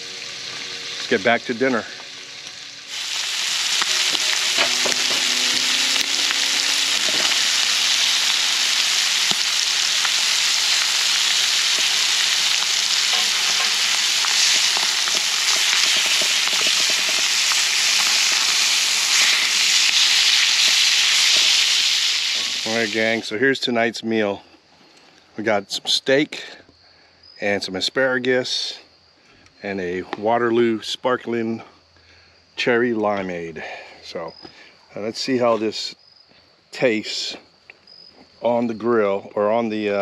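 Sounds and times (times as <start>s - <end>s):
steak sizzling in a skillet: 0.0s - 23.2s.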